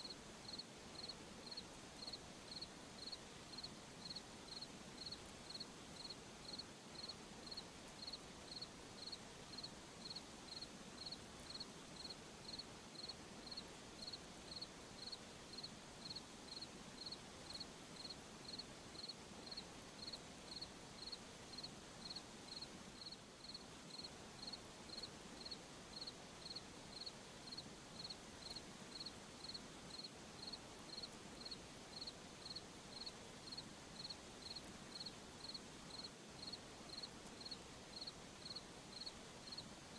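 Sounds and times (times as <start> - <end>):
cricket chirping: 0.0 - 39.6
faint hiss of night air: 0.0 - 39.9.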